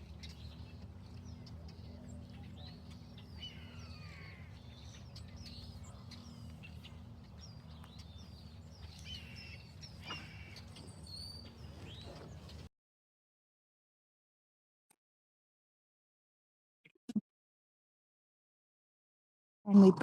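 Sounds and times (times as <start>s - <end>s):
birds chirping: 0.0s - 12.7s
steady low hum: 0.0s - 12.7s.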